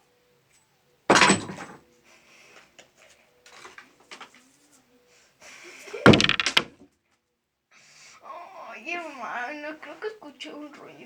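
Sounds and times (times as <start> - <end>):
loud clatter of knocks: 1.1 - 1.8, 6.1 - 6.8.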